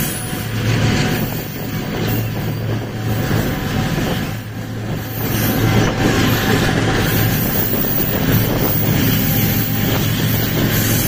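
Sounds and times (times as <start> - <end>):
train wheels rumbling on rails: 0.0 - 11.0
wind on the microphone: 0.1 - 11.0.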